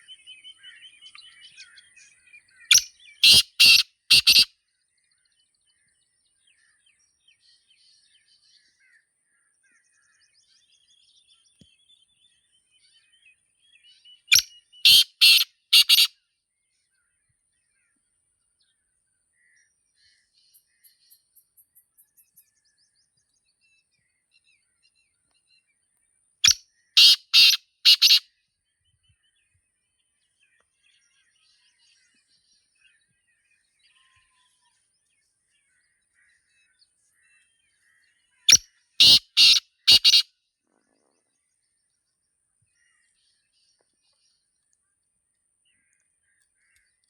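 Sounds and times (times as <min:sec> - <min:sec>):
small birds chirping: 0:00.0 - 0:16.1, 0:16.9 - 0:47.0
francolin calling: 0:02.7 - 0:04.5, 0:14.3 - 0:16.1, 0:26.4 - 0:28.2, 0:38.5 - 0:40.2.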